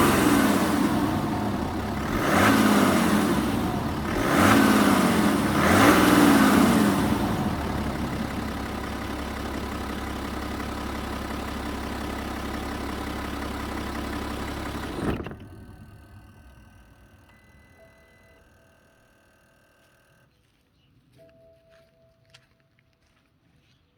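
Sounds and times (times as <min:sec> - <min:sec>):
diesel engine revving and idling: 0:00.0 - 0:17.4.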